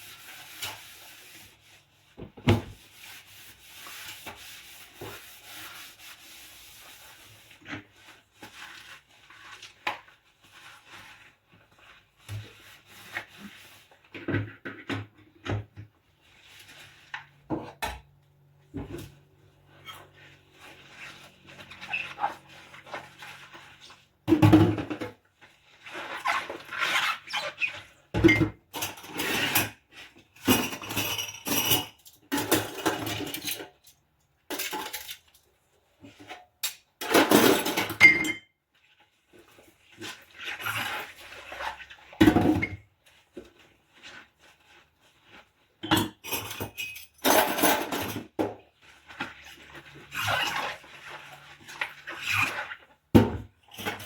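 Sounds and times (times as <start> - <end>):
dishes and cutlery clinking: 30.4 - 35.3, 45.8 - 48.3.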